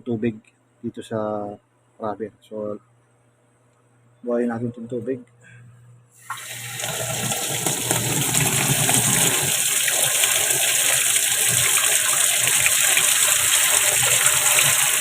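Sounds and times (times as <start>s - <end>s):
water gushing into washing machine: 6.2s - 15.0s.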